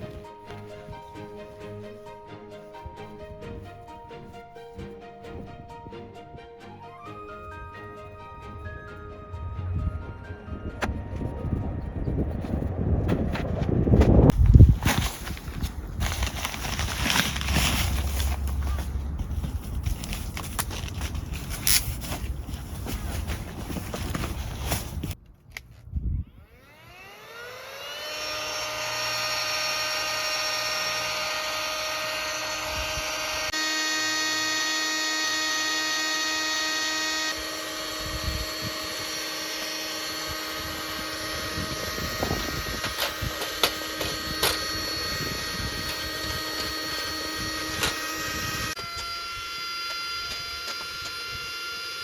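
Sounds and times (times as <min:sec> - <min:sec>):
small electric motor whine: 0:26.2 - 0:52.0.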